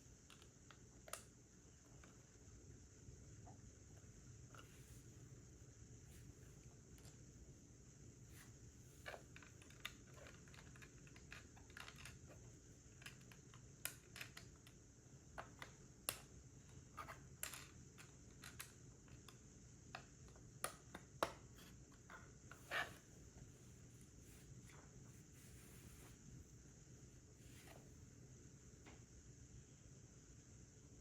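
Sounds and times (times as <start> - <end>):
plastic bricks clicking and tapping: 9.1 - 14.8, 17.1 - 19.4.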